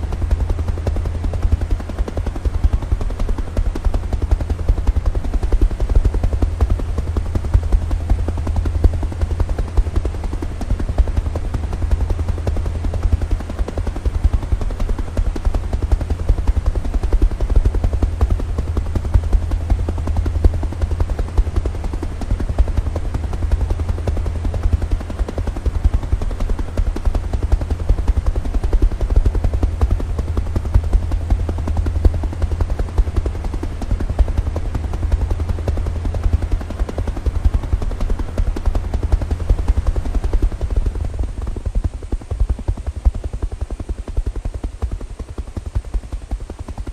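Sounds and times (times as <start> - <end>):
helicopter rotor beat: 0.0 - 46.9.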